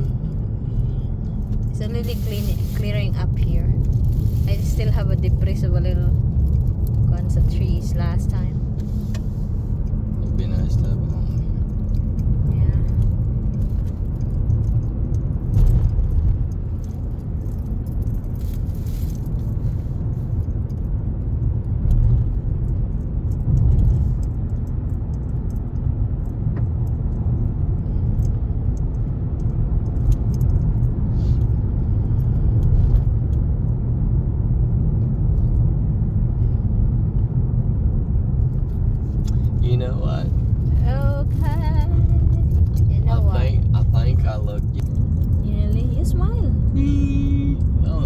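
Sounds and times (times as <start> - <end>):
faint rattles and ticks: 0.0 - 33.4
car road rumble inside cabin: 0.0 - 48.0.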